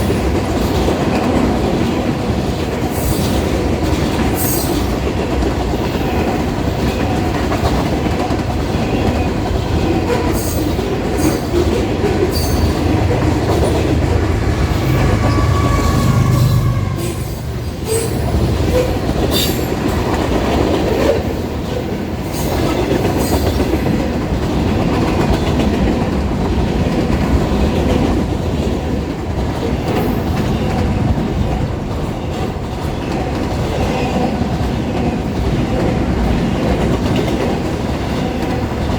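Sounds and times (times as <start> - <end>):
freight train rumbling past: 0.0 - 38.9
faint wheel squeal: 14.7 - 19.7.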